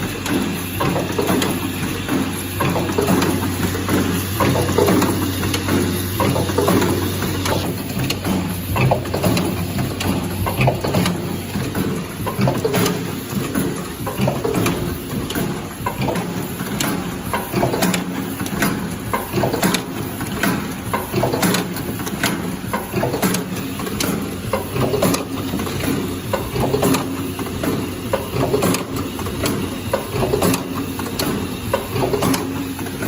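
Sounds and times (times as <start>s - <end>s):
machine low hum: 0.0s - 19.3s
mechanism clicks and clacks: 0.0s - 33.0s.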